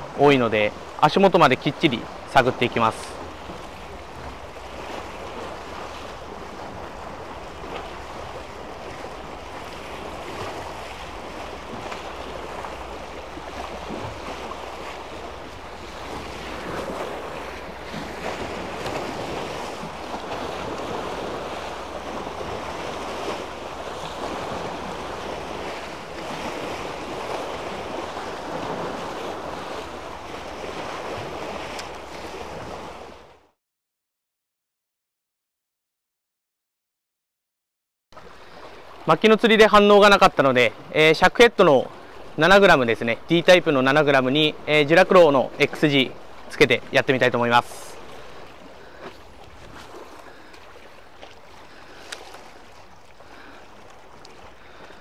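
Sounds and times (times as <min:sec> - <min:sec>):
sea waves washing on concrete: 0:00.0 - 0:33.4, 0:38.2 - 0:55.0.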